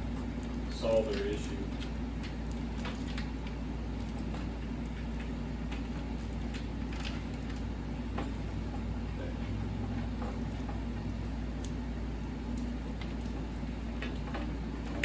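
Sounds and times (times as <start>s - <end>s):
steady low hum: 0.0s - 15.0s
light clicks and taps: 0.1s - 8.8s.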